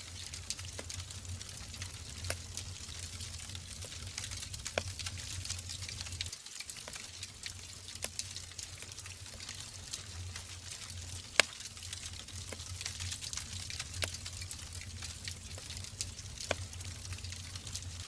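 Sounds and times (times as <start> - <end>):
wood fire crackling: 0.0 - 18.0
burning log snapping: 3.8 - 7.0, 11.3 - 11.8, 12.4 - 17.7.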